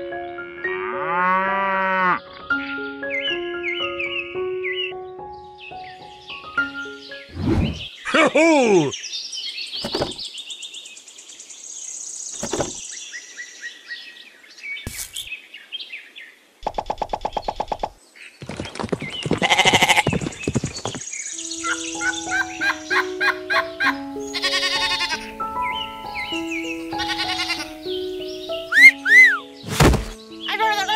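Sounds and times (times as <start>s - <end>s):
birds chirping and trilling: 0.2s - 30.9s
loud bleat: 24.4s - 25.2s, 27.0s - 27.7s.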